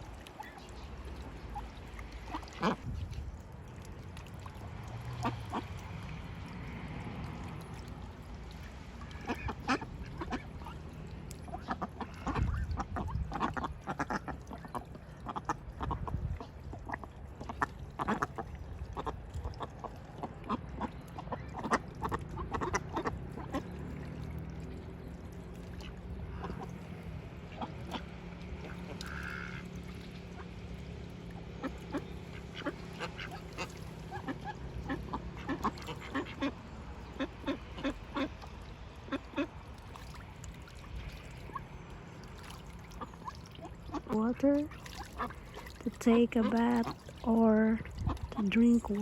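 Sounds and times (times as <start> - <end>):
ducks quacking: 2.2 - 2.9, 9.0 - 23.8, 27.5 - 30.5, 31.6 - 38.5.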